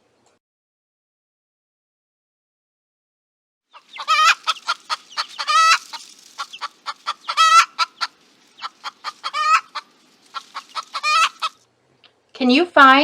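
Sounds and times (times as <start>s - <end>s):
chickens clucking: 3.7s - 11.6s.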